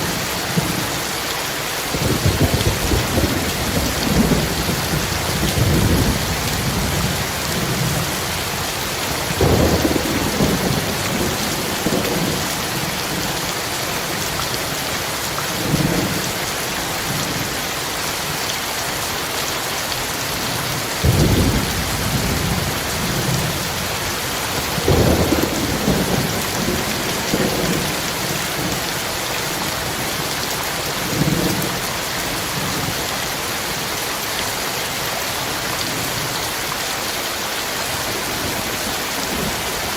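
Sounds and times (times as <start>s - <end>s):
heavy rain falling: 0.0s - 39.9s
thunder rumbling: 1.9s - 13.4s, 21.0s - 28.8s.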